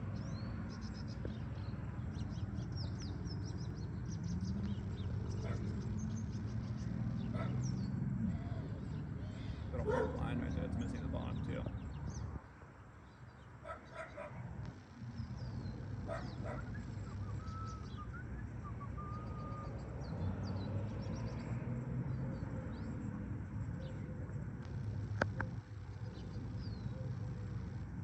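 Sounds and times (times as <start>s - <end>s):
steady low rumble: 0.0s - 13.2s, 14.4s - 28.0s
small birds chirping: 0.0s - 28.0s
dog barking: 5.4s - 5.8s, 7.3s - 7.7s, 9.7s - 10.4s, 13.6s - 14.4s, 16.0s - 16.8s.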